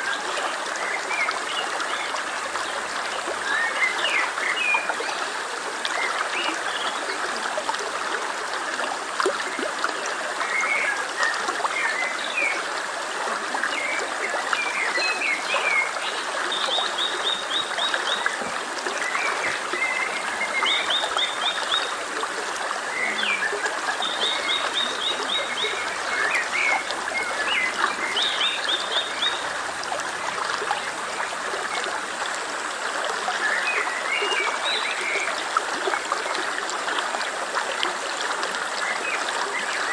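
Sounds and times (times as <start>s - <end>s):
stream babbling: 0.0s - 39.9s
small birds chirping: 14.8s - 31.3s.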